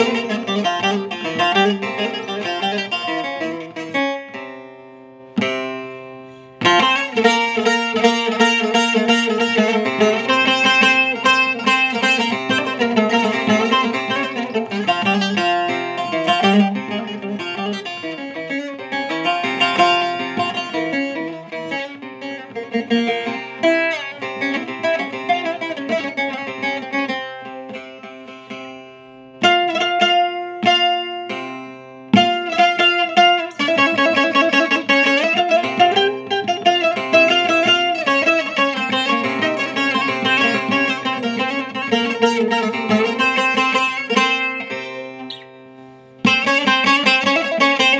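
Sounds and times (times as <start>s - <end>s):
plucked lute runs over drone strings: 32.2s - 45.5s.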